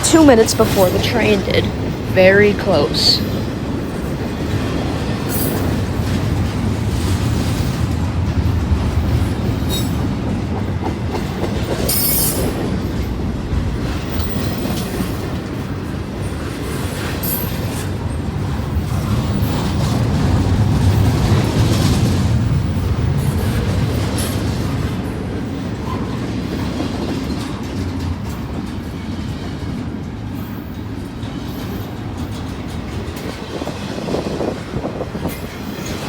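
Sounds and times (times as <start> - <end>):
freight train rumbling on rails: 0.0 - 36.0
train wheel squeals: 9.2 - 10.1, 11.8 - 12.7.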